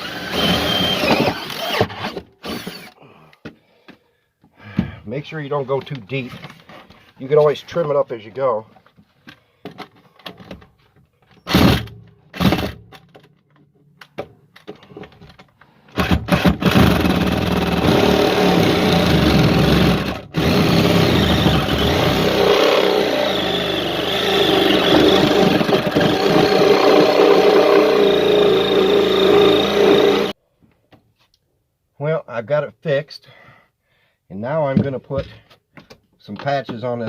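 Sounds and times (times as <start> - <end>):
jigsaw cutting: 0.0 - 2.9, 16.0 - 30.4.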